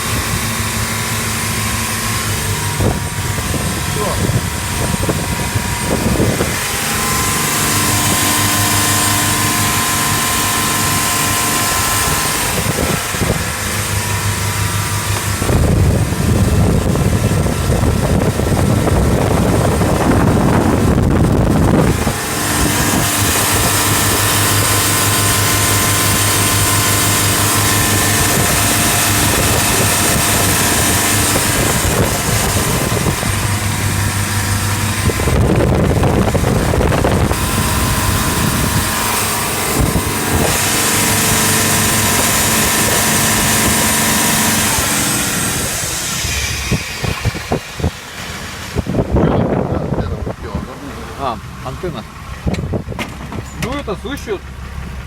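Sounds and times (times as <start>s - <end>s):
boat diesel engine running: 0.0s - 55.0s
wind and water rushing: 0.0s - 55.0s.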